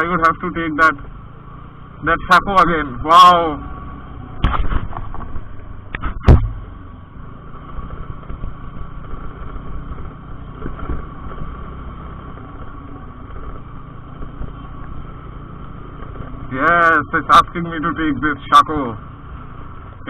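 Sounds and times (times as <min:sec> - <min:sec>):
scooter engine running: 0:00.0 - 0:20.0
wind and road rumble: 0:00.0 - 0:20.0
sharp knock: 0:06.0 - 0:06.6.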